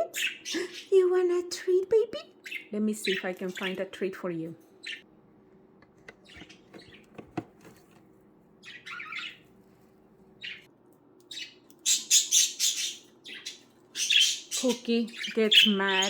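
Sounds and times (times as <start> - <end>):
budgerigars chirping: 0.1 - 1.0, 2.4 - 4.0, 4.8 - 5.0, 8.6 - 9.4, 10.4 - 10.7, 11.3 - 16.0.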